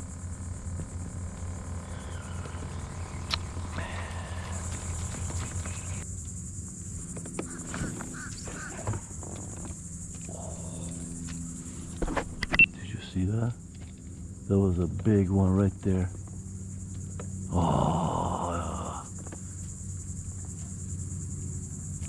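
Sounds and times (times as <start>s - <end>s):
high-pitched insect buzzing: 0.0s - 14.5s
low hum: 0.0s - 22.0s.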